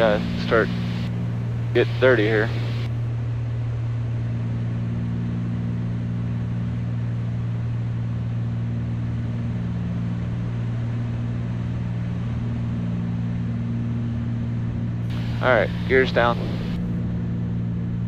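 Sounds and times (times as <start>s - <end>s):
deep hum: 0.0s - 3.1s, 15.1s - 17.0s
airplane engines and propellers droning: 0.0s - 18.0s.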